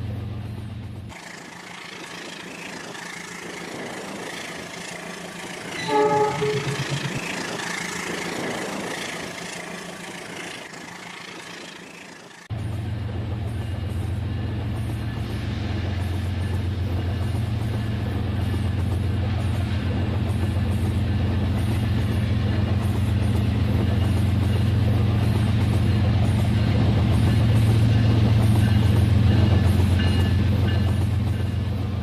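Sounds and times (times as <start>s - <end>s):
regular repeating high sound: 6.3s - 7.4s.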